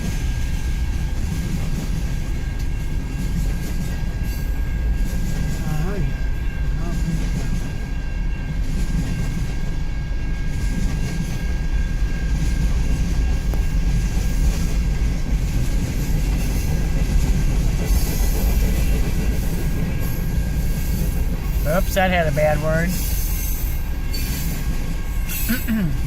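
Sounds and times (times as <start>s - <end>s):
freight cars rumbling over rails: 0.0s - 26.0s
wheel squeal: 23.0s - 24.6s.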